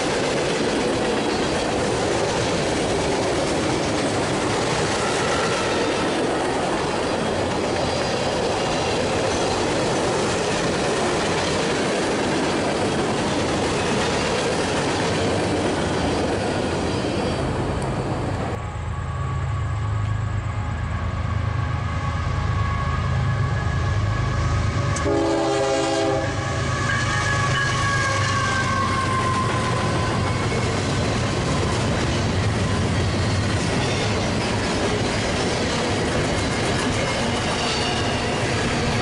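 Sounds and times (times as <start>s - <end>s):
train wheel clatter: 0.0s - 18.0s, 26.8s - 39.0s
diesel locomotive engine rumble: 0.0s - 39.0s
multi-tone train horn blast: 22.5s - 29.8s
wavering wheel squeal: 26.4s - 30.8s.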